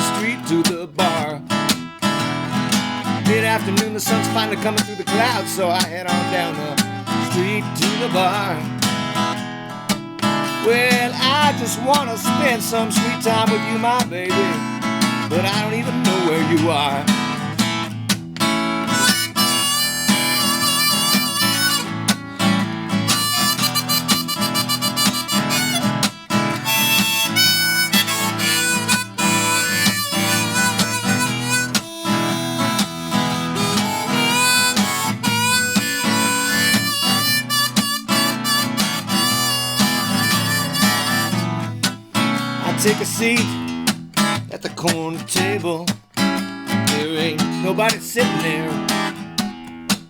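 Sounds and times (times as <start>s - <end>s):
blues harmonica: 0.0s - 44.4s, 46.2s - 49.6s
strummed acoustic guitar: 0.0s - 50.0s.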